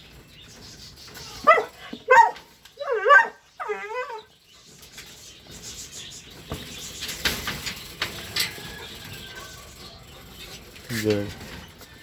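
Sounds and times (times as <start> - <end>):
dog barking: 1.4 - 3.4.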